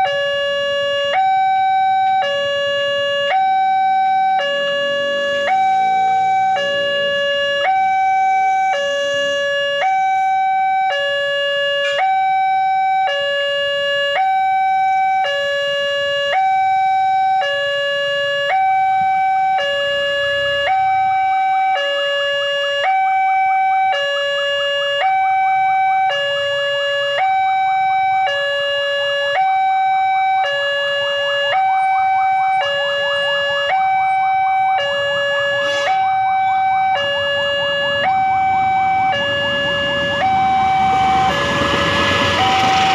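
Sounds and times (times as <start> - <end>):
two-tone crossing alarm chime: 0.0 - 42.9
rushing noise: 37.7 - 42.9.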